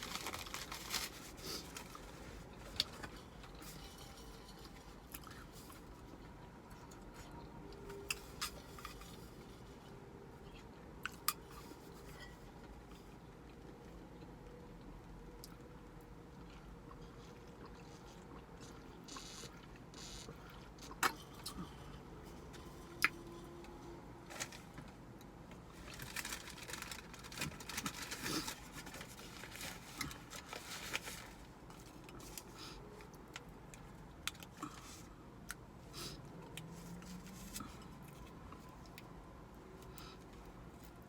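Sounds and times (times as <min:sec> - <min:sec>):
clicking and rustling of food: 0:24.3 - 0:35.6.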